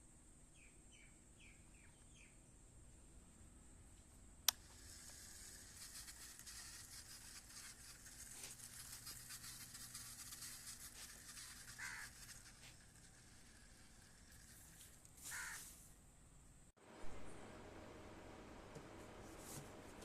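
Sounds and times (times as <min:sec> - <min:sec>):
faint crackling rustle: 0:03.9 - 0:16.0.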